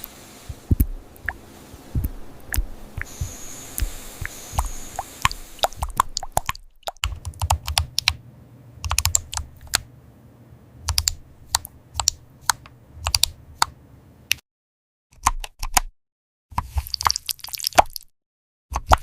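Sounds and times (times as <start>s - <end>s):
keyboard typing clicks: 2.0s - 8.2s, 8.8s - 9.9s, 10.9s - 13.8s.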